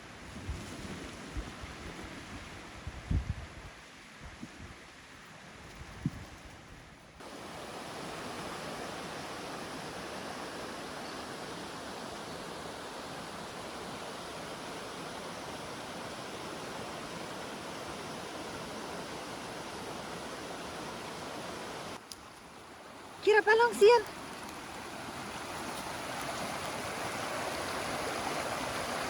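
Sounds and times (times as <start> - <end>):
water rushing: 7.2 - 29.0.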